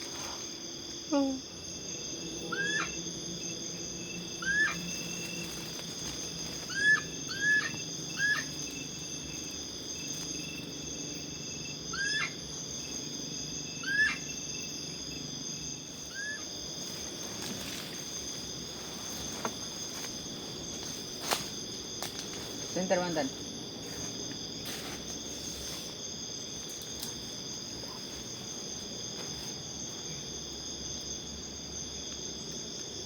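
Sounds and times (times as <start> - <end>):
night insects droning: 0.0 - 33.0
animal chirp-like calls: 6.7 - 8.6, 11.9 - 12.4, 13.8 - 14.3, 16.1 - 16.5.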